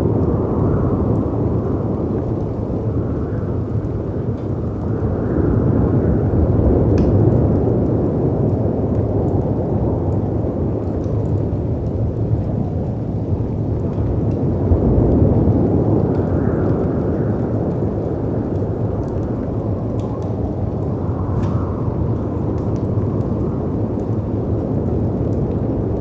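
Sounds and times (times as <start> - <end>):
fireplace crackles and pops: 0.0 - 26.0
rumbling wind: 0.0 - 26.0.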